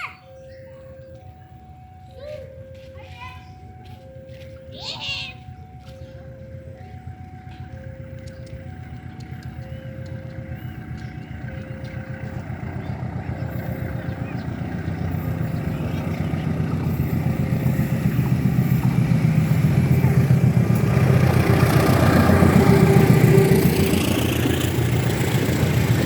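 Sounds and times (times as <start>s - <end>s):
diesel locomotive engine drone: 0.0s - 26.0s.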